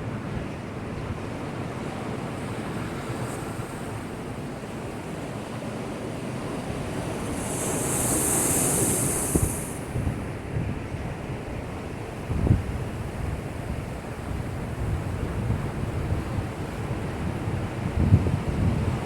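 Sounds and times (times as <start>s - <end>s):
waves washing against breakwater: 1.8s - 10.4s
wave hissing surge: 6.8s - 10.0s.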